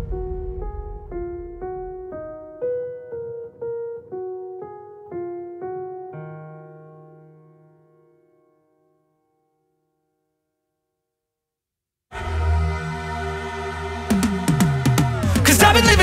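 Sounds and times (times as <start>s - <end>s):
piano notes: 0.0s - 9.8s.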